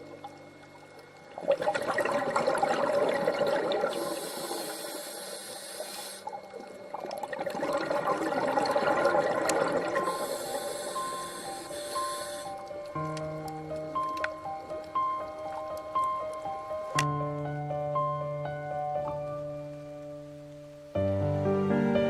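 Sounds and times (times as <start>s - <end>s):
water bubbling and gurgling: 0.0s - 17.1s.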